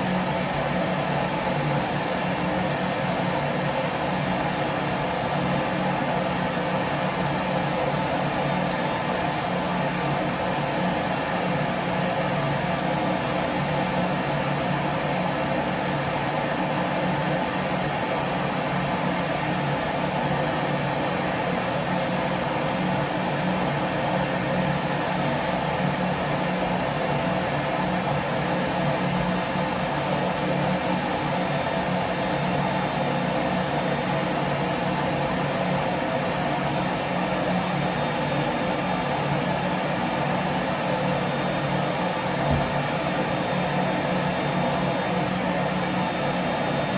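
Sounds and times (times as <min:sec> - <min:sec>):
vacuum cleaner running: 0:29.1 - 0:46.9.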